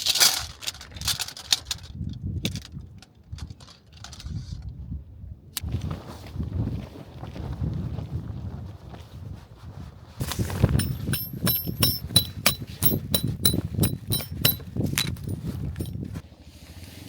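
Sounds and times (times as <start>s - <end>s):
sharp metallic strikes ringing: 10.8s - 16.0s.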